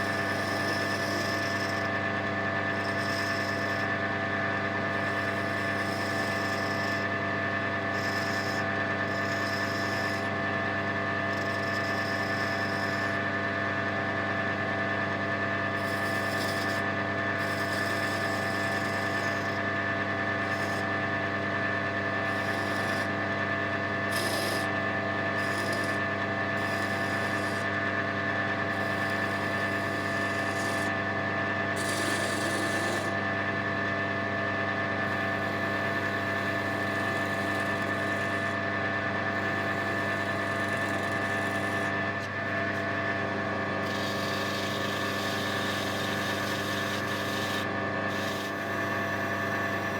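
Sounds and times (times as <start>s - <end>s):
wood lathe motor hum: 0.0s - 49.9s
turning tool scraping wood: 2.8s - 3.8s, 5.0s - 7.2s, 7.9s - 10.3s, 11.3s - 13.2s, 15.8s - 19.6s, 20.3s - 20.9s, 22.2s - 23.2s, 24.0s - 27.8s, 28.7s - 31.0s, 31.7s - 33.2s, 35.0s - 38.6s, 39.3s - 43.2s, 43.8s - 49.9s.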